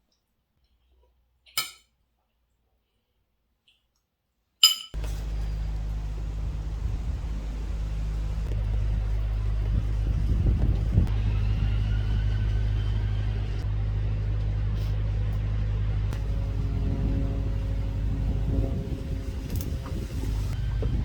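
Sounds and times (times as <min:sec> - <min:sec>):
road noise: 0:05.0 - 0:21.0
vehicle engine rumble: 0:05.0 - 0:21.0.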